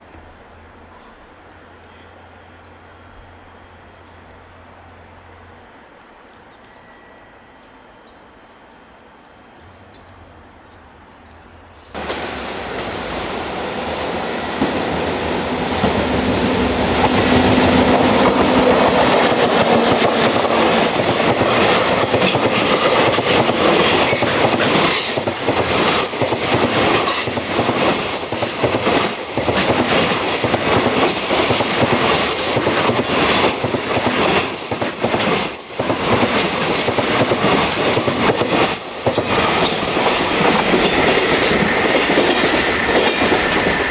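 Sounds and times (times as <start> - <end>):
freight train passing: 0.0 - 43.9
wheels clacking over rail joints: 14.1 - 43.9.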